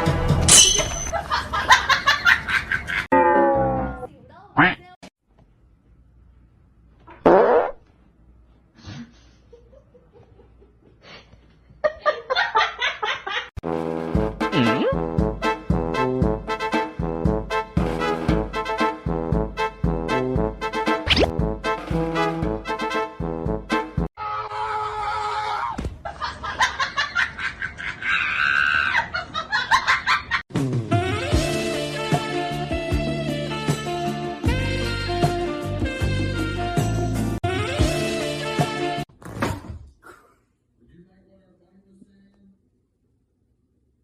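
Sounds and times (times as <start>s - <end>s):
comic brass music: 13.6s - 24.1s, 30.5s - 39.1s
sudden loud cry: 24.2s - 25.8s.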